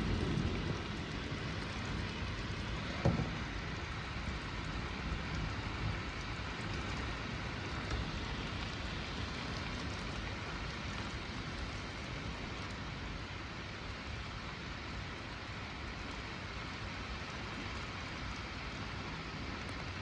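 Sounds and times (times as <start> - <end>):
heavy rain and wind: 0.0 - 20.0.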